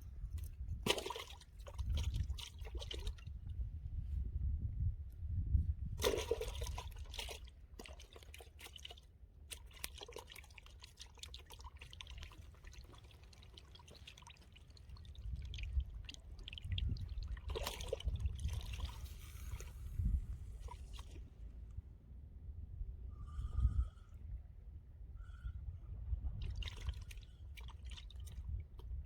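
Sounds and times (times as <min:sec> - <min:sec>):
water splashing and trickling: 0:00.0 - 0:03.6, 0:06.0 - 0:21.4, 0:26.3 - 0:29.0
steady low rumble: 0:15.1 - 0:26.6.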